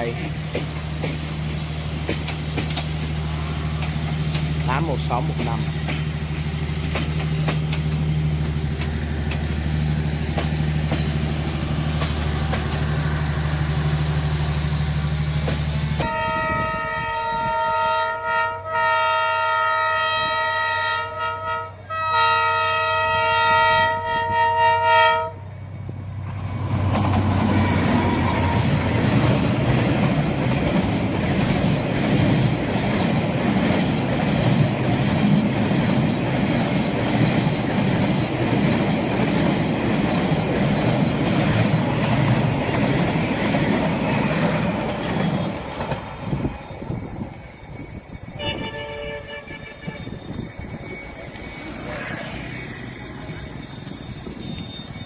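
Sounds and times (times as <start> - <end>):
train wheels clattering on rail: 0.0 - 16.4, 26.2 - 55.0
locomotive engine humming: 0.0 - 55.0
locomotive horn blasts: 16.0 - 25.4, 48.4 - 50.2.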